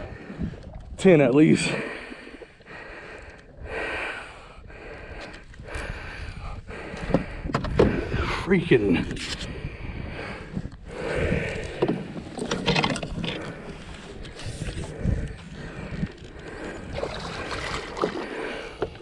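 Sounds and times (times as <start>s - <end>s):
water splashing: 16.4s - 19.0s.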